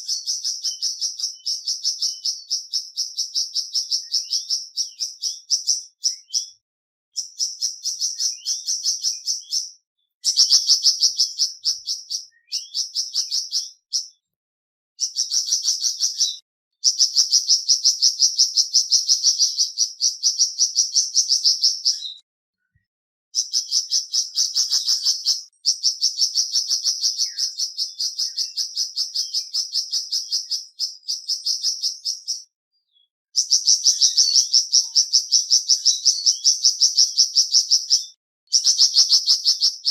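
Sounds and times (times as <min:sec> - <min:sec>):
songbird chipping song: 0:00.0 - 0:14.4, 0:15.0 - 0:39.9.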